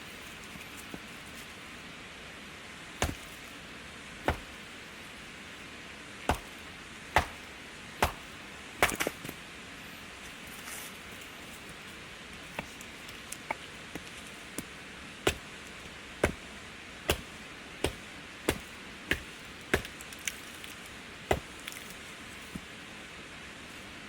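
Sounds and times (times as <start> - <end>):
axe chopping wood: 3.0 - 3.4, 4.2 - 4.6, 6.2 - 9.3, 13.4 - 22.7.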